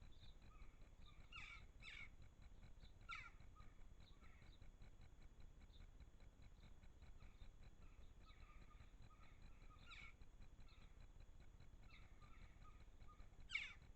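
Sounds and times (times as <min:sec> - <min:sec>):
small birds chirping: 0:00.0 - 0:05.0, 0:05.6 - 0:13.9.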